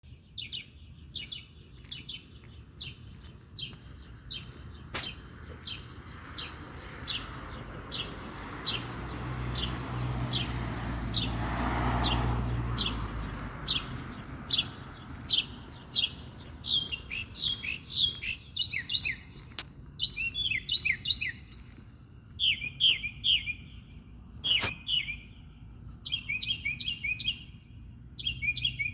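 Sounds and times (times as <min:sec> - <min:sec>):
songbird chirping: 0:00.0 - 0:28.9.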